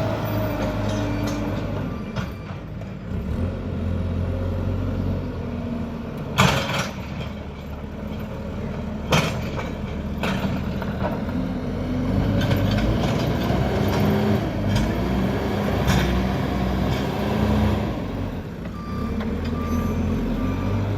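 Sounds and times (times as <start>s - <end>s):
reversing alarm beeping: 0.0s - 2.8s, 18.7s - 20.9s
diesel engine running: 0.0s - 4.3s.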